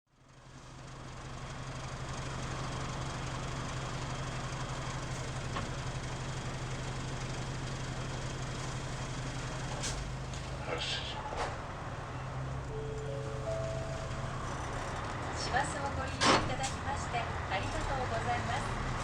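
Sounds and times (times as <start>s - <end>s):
bus diesel engine idling: 0.2s - 19.0s.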